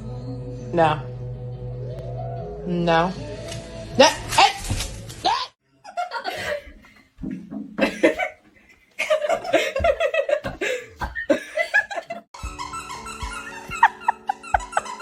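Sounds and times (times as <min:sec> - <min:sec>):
person laughing: 0:07.8 - 0:12.3, 0:13.3 - 0:15.0.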